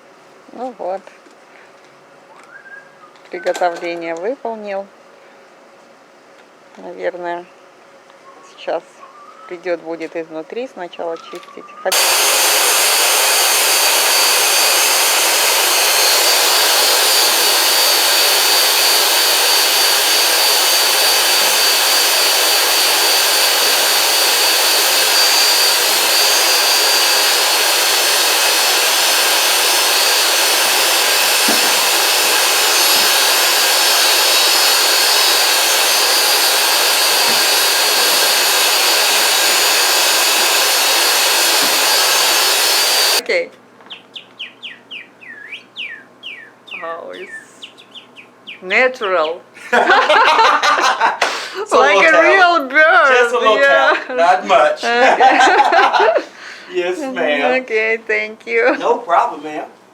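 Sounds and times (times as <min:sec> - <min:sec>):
vacuum cleaner running: 0:11.9 - 0:43.2, 0:49.7 - 0:56.3.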